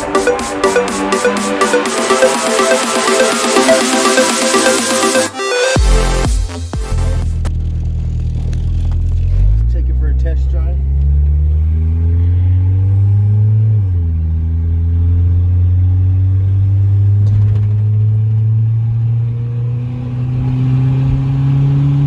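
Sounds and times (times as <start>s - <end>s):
car engine accelerating: 5.4s - 22.0s.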